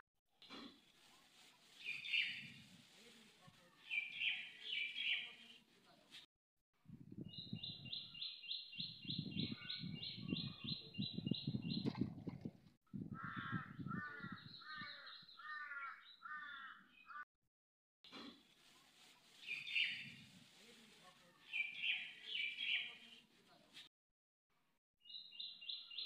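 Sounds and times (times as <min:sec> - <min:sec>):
harsh bird calls: 0:13.1 - 0:17.2
birds chirping: 0:13.2 - 0:17.2.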